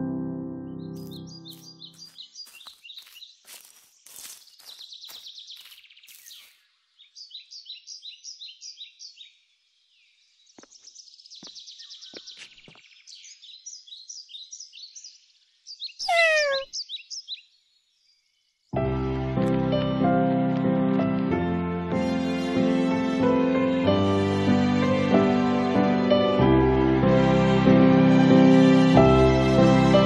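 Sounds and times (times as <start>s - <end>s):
birds chirping: 0.8s - 18.6s
bird call falling in pitch: 16.0s - 16.7s.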